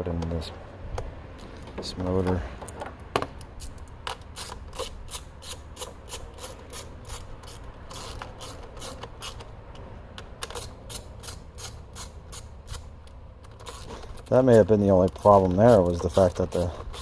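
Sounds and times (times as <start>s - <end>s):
hand ratchet clicking: 3.6s - 9.5s, 10.4s - 17.0s.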